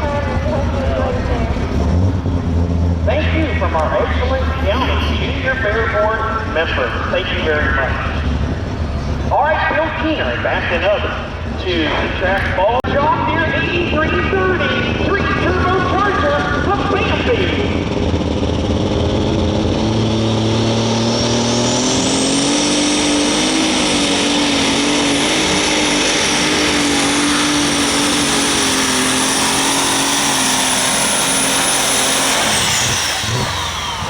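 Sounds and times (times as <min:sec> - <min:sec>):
tractor engine under full power: 0:00.0 - 0:34.0
turbo whine: 0:13.7 - 0:34.0.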